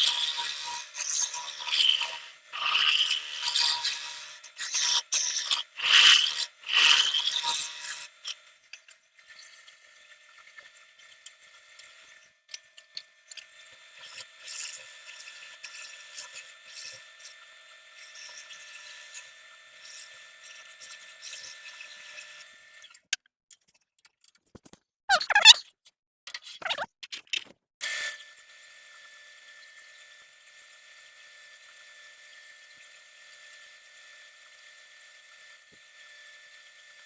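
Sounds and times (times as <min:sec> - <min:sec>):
tool scraping spinning wood: 0:00.0 - 0:08.4, 0:14.0 - 0:17.4, 0:18.0 - 0:22.4
wood lathe whining: 0:00.0 - 0:08.4, 0:13.6 - 0:17.4, 0:18.0 - 0:22.5.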